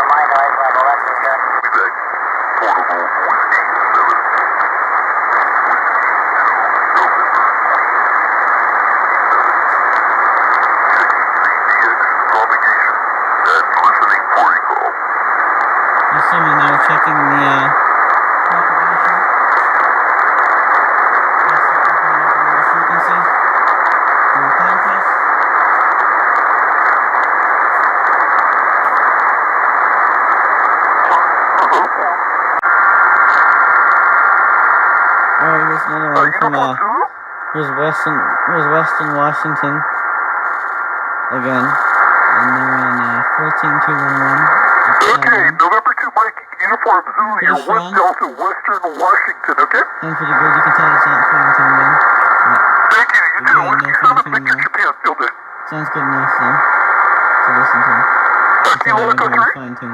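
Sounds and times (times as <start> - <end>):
faint weak radio signals: 0.0 - 59.9
radio receiver hiss and static: 0.0 - 59.9
light static clicks: 32.6 - 35.4, 39.7 - 49.9.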